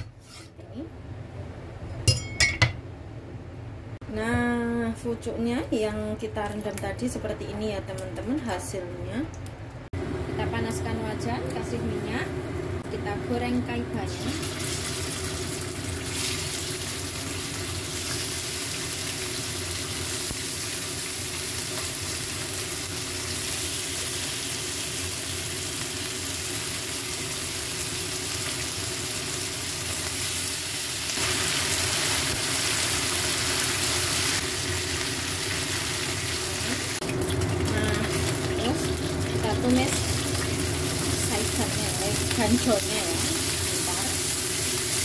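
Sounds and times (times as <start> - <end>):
chicken sizzling in hot oil: 13.7 - 45.0.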